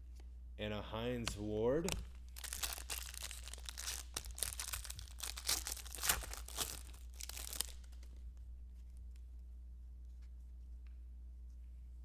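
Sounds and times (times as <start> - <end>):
steady low hum: 0.0 - 12.0
card pack wrappers crinkling: 1.8 - 8.2.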